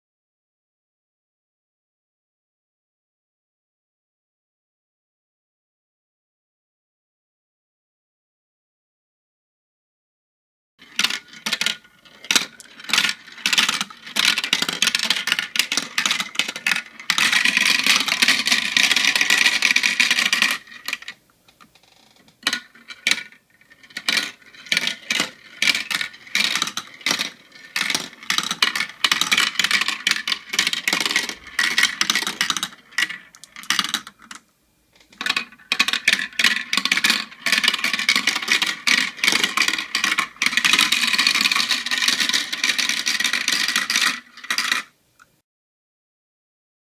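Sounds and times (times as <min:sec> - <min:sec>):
marbles clacking down a marble run: 0:10.8 - 0:34.4, 0:35.0 - 0:45.0
continuous marble rattling: 0:10.8 - 0:45.0.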